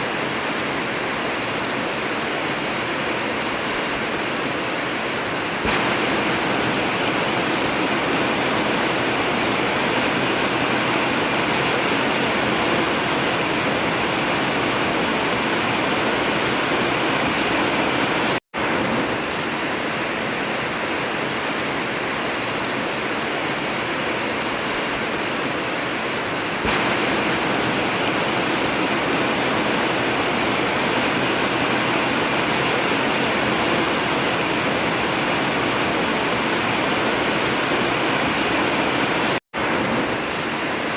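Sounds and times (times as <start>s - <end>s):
heavy rain on a metal roof: 0.0s - 40.9s.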